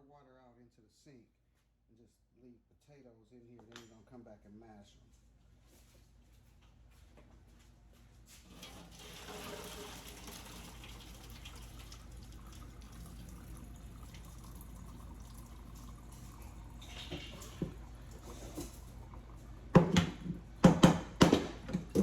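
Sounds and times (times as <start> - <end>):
water pouring into sink: 8.5 - 19.5.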